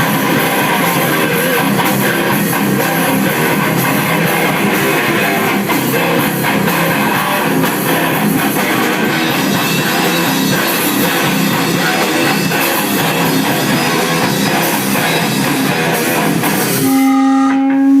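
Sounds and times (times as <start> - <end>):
grindcore band playing: 0.0 - 18.0
sustained ringing note: 16.8 - 18.0.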